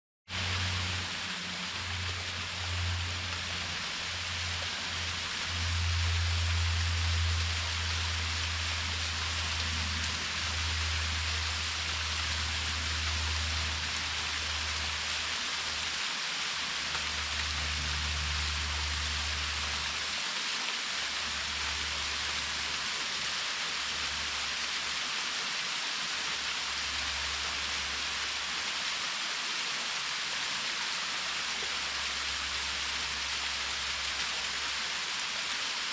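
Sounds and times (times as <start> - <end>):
low water rumble: 0.3 - 20.2
waterfall hissing: 0.3 - 35.9.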